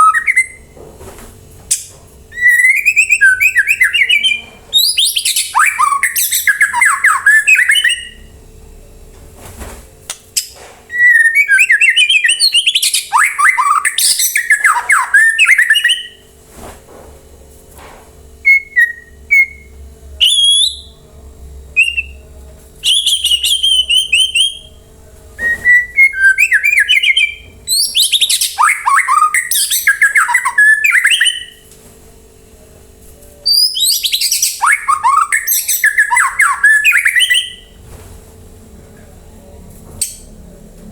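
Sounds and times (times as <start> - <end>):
bird singing whistles: 0.0 - 0.7, 2.4 - 8.3, 10.9 - 16.2, 18.4 - 21.0, 21.8 - 22.2, 22.8 - 24.7, 25.4 - 31.6, 33.5 - 37.7.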